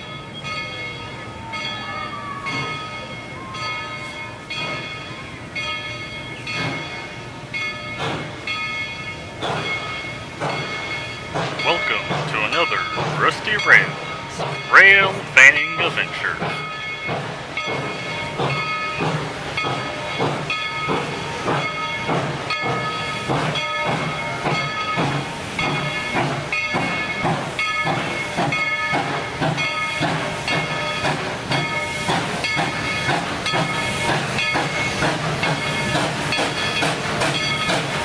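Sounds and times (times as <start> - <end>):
locomotive bell ringing: 0.0 - 19.0.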